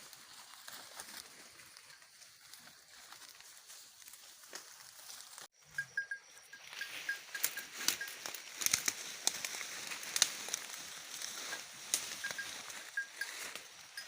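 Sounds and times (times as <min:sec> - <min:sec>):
leafy branches rustling: 0:00.0 - 0:05.5, 0:06.6 - 0:14.0
faint high chirp: 0:05.6 - 0:08.4, 0:11.4 - 0:14.0
twigs snapping: 0:07.9 - 0:12.2.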